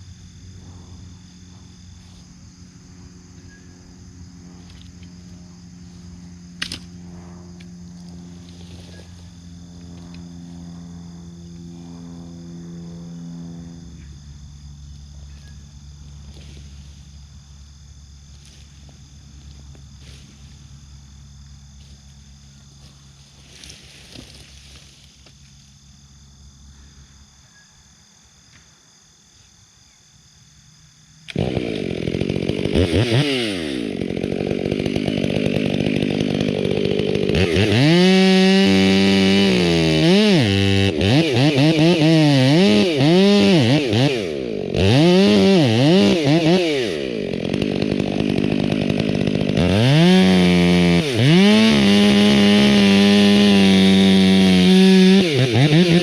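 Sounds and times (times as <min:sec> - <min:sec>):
chainsaw revving: 0:00.0 - 0:14.1, 0:16.0 - 0:17.0, 0:18.3 - 0:25.3, 0:31.2 - 0:56.0.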